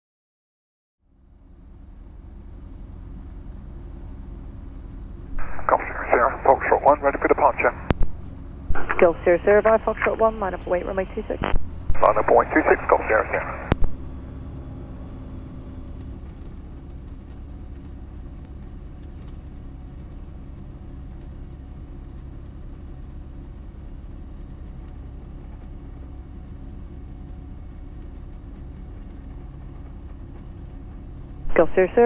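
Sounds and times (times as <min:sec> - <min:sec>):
aircraft engine and propeller idling: 0:01.3 - 0:32.0.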